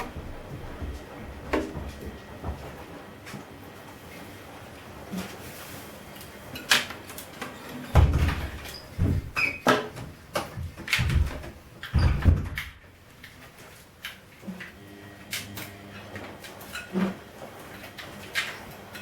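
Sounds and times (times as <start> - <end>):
washing machine knocking: 0.0 - 3.2, 7.9 - 13.0.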